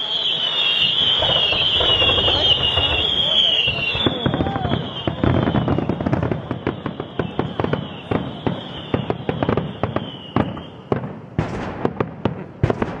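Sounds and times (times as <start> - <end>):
high whistle sinking in pitch: 0.0 - 10.9
firecrackers banging and crackling: 0.0 - 13.0.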